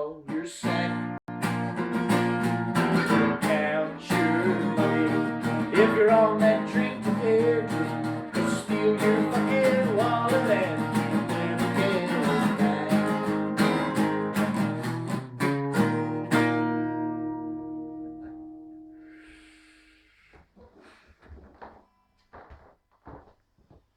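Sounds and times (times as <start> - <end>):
man singing: 0.0 - 1.2, 3.0 - 14.5, 15.7 - 16.7
strummed acoustic guitar: 0.0 - 19.2.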